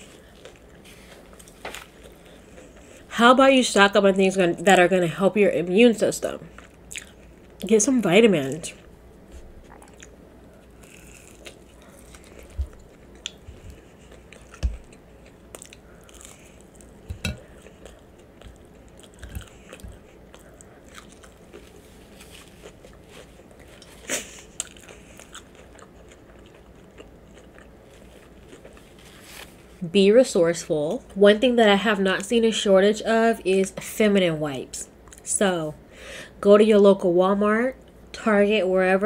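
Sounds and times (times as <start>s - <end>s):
person chewing food: 0.0s - 3.0s, 6.5s - 7.6s, 9.3s - 29.7s.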